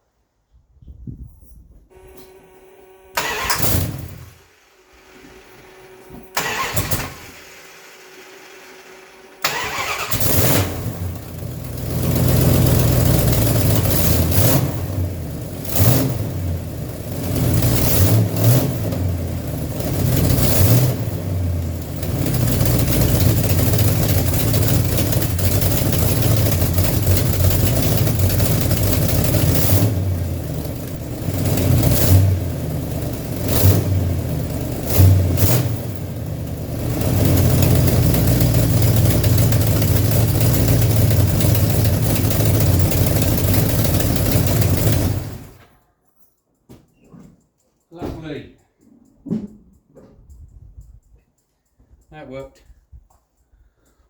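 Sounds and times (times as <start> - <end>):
car engine starting and revving: 3.1 - 45.7
engine cranking: 3.2 - 4.4, 5.0 - 45.8.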